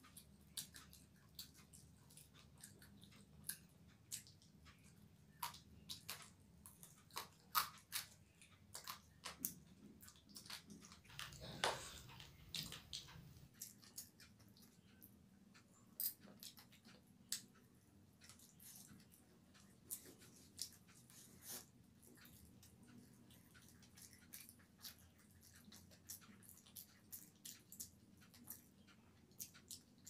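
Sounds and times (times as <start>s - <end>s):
person chewing with mouth clicks: 0.0s - 30.0s.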